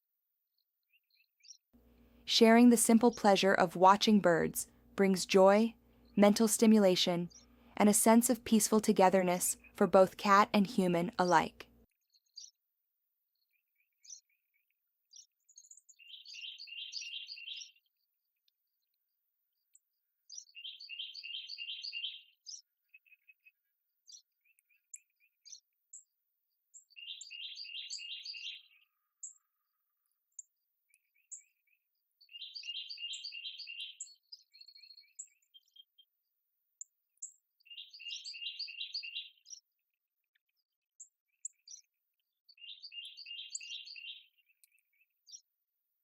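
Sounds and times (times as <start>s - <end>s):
songbird singing: 2.3s - 12.6s, 13.3s - 17.9s, 19.7s - 23.4s, 26.7s - 29.5s, 30.3s - 36.1s, 36.8s - 39.7s, 40.3s - 45.5s.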